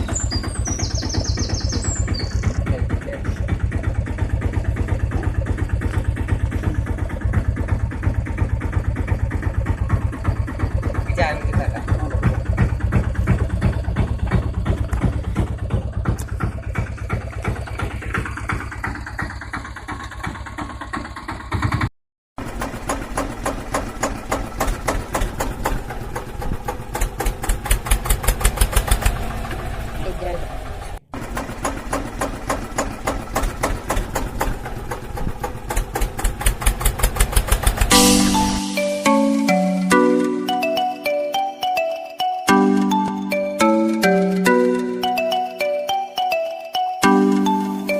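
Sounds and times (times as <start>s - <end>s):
tractor diesel engine chugging: 0.0s - 41.9s
music: 37.9s - 47.9s.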